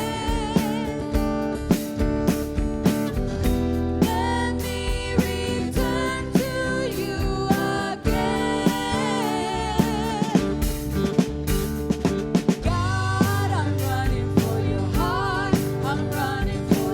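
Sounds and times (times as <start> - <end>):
drum kit: 0.0 - 16.9
person singing: 4.0 - 10.7, 12.6 - 16.9.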